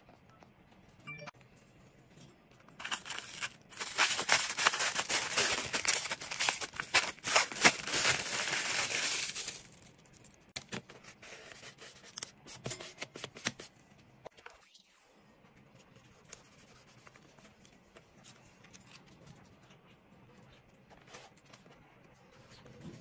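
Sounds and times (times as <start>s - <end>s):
soft handling sounds: 2.1s - 13.3s
paper tearing and crinkling: 2.8s - 9.9s.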